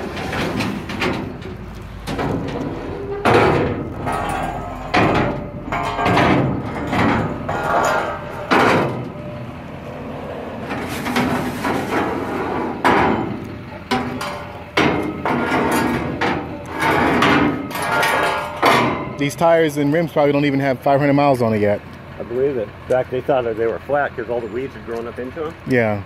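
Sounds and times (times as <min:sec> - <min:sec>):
loud ringing knocks and bangs: 0:00.0 - 0:09.6, 0:10.7 - 0:19.6.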